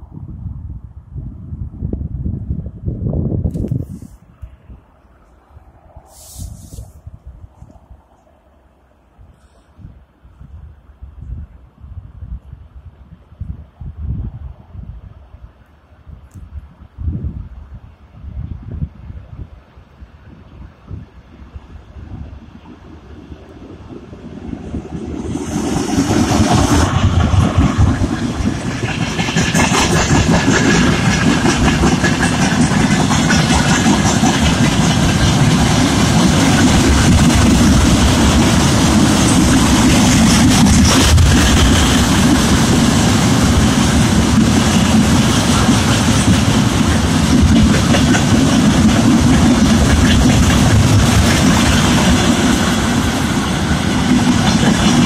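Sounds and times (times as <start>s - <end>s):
freight train wheels rumbling on rails: 20.2s - 55.0s.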